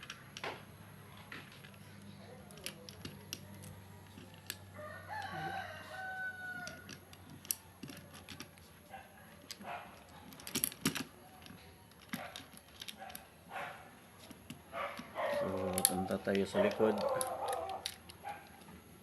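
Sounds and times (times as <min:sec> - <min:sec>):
rooster crowing: 0:04.7 - 0:06.9.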